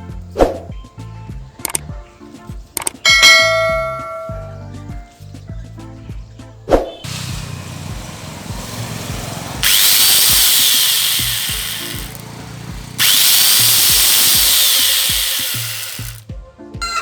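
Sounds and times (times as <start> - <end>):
background music with steady beat: 0.0 - 7.1, 7.9 - 17.0
angle grinder running: 7.1 - 16.2.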